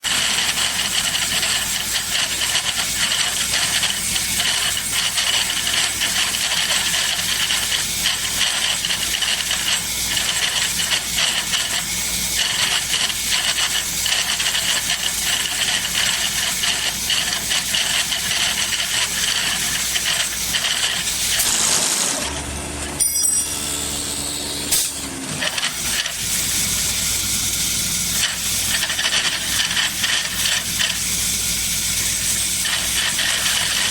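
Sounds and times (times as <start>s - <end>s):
lathe tool shaving wood: 0.1s - 22.8s, 27.8s - 33.9s
machine hum: 21.2s - 28.0s.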